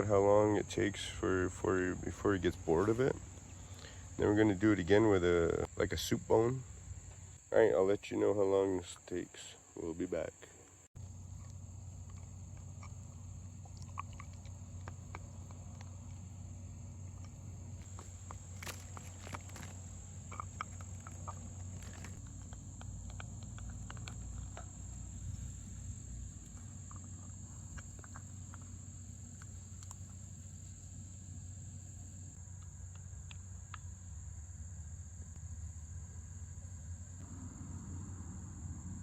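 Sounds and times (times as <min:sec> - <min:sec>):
dog teeth clicking on antler: 0:17.9 - 0:25.0
low hum: 0:35.6 - 0:39.0.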